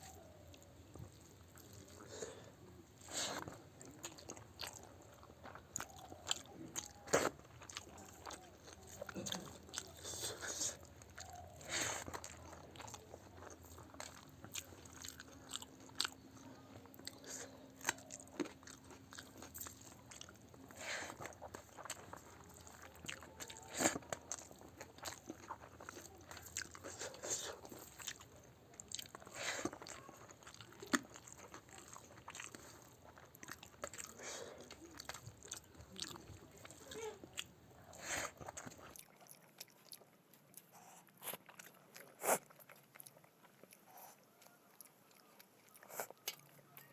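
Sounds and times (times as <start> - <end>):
person chewing food: 0.0 - 46.9.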